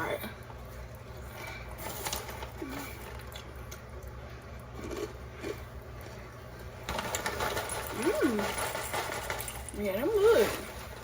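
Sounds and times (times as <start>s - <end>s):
person chewing: 4.7s - 5.7s.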